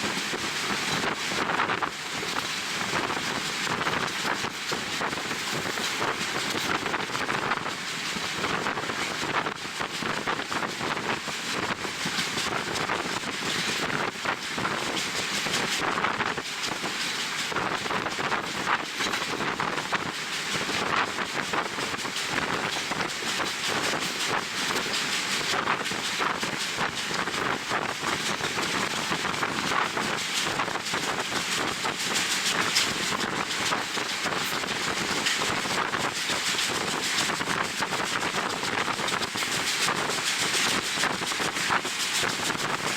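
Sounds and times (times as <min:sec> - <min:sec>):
train running: 0:00.0 - 0:42.9
wind buffeting microphone: 0:00.0 - 0:42.9.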